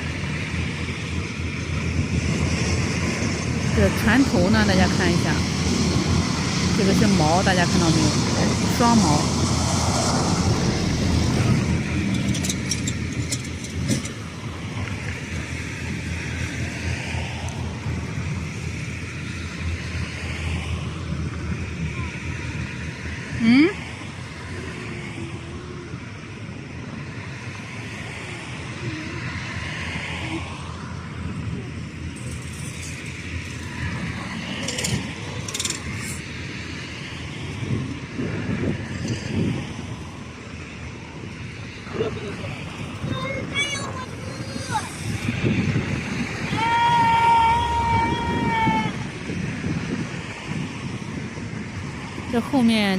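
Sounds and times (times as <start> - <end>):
low engine rumble: 0.0 - 52.9
wind on microphone: 0.0 - 52.9.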